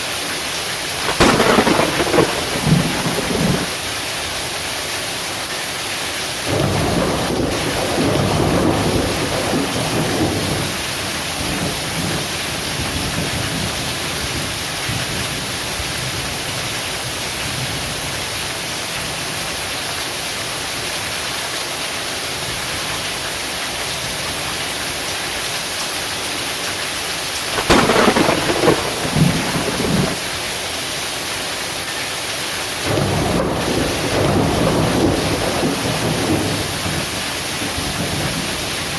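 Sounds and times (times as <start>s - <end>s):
heavy rain falling: 0.0s - 38.9s
sharp thunderclap: 1.0s - 3.8s, 6.5s - 13.6s, 27.5s - 30.3s, 32.9s - 38.9s
thunder rumbling: 1.0s - 3.9s, 6.5s - 15.5s, 27.5s - 30.4s, 32.9s - 38.9s.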